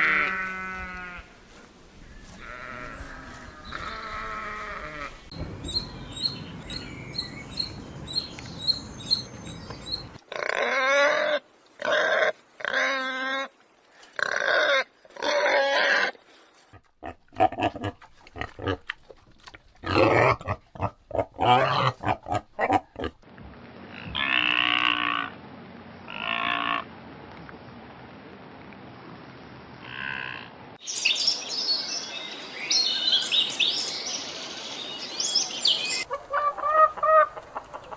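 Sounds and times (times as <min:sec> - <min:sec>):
pigs grunting: 0:16.8 - 0:23.2
pigs squealing: 0:16.8 - 0:23.2.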